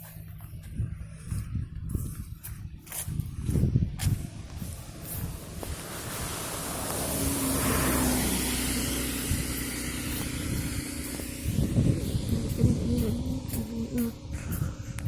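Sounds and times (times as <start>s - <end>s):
car driving past on wet road: 4.8s - 12.3s.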